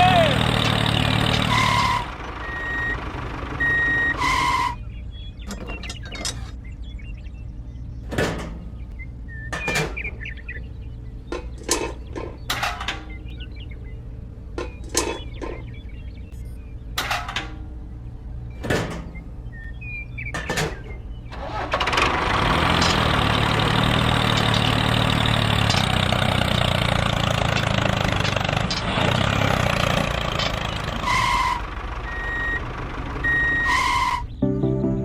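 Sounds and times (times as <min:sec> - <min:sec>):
engine running: 0:00.0 - 0:35.0
short electronic beeps: 0:32.1 - 0:33.9.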